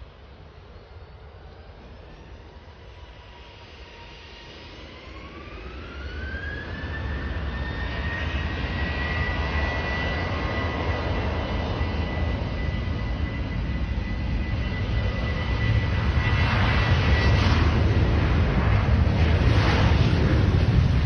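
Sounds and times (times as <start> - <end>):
jet engine whine rising: 0.0 - 21.0.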